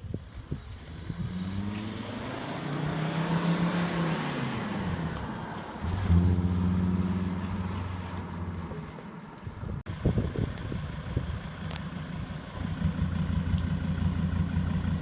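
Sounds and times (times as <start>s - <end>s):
diesel car engine running: 9.9s - 15.0s.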